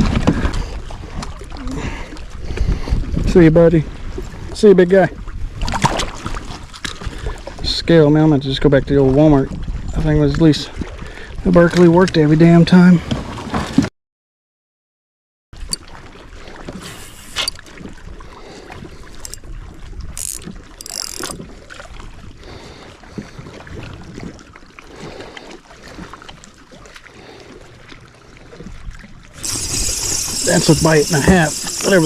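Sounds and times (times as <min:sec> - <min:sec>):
wind on microphone: 0:00.0 - 0:07.8, 0:08.7 - 0:11.5, 0:28.6 - 0:32.0
kayak knocking and rubbing: 0:16.6 - 0:17.7, 0:29.4 - 0:32.0
short hissing bursts: 0:16.8 - 0:17.5, 0:29.4 - 0:32.0.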